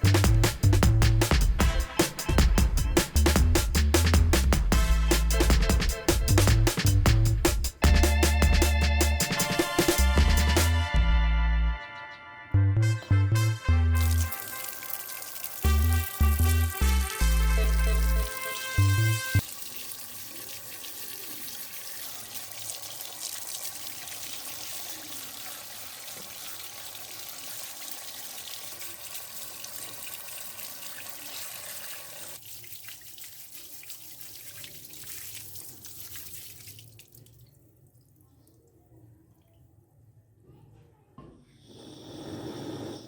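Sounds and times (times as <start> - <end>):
background music: 0.0 - 19.4
tap water running into sink: 14.0 - 37.3.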